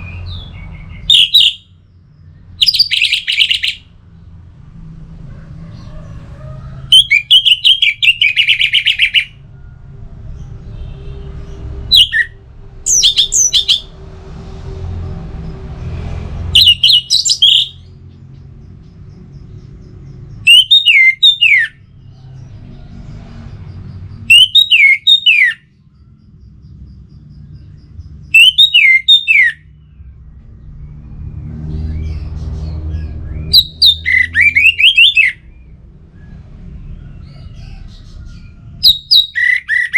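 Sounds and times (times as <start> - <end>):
thrush singing whistled phrases: 0.2 - 1.7, 2.6 - 3.9, 6.9 - 9.4, 11.9 - 13.9, 16.6 - 17.9, 20.4 - 21.8, 24.2 - 25.6, 28.3 - 29.7, 33.5 - 35.5, 38.8 - 39.9.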